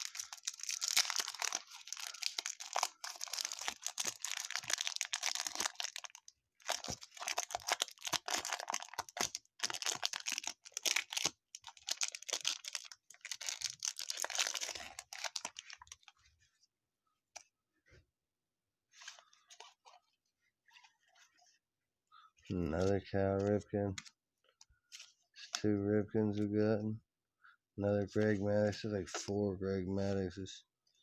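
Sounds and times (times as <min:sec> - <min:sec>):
wrappers crinkling and tearing: 0:00.0 - 0:16.1.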